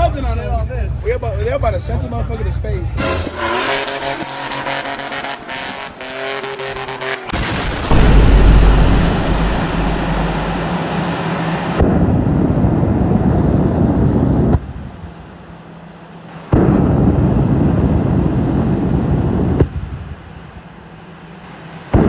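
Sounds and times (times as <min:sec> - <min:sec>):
truck engine at high revs: 0:03.0 - 0:14.7
tires spinning roar: 0:03.2 - 0:14.6.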